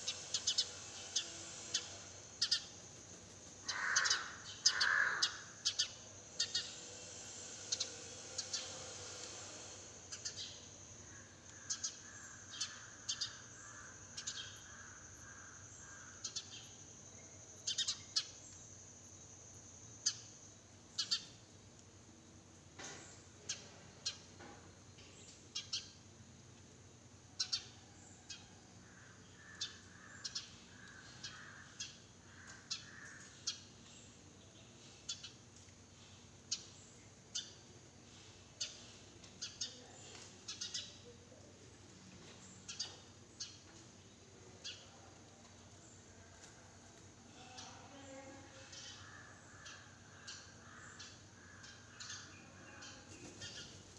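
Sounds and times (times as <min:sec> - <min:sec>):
soft low bird calls: 0:03.6 - 0:06.8
sparrows chirping: 0:03.7 - 0:06.8, 0:17.6 - 0:18.5, 0:39.4 - 0:41.1, 0:42.2 - 0:43.8, 0:47.4 - 0:53.9.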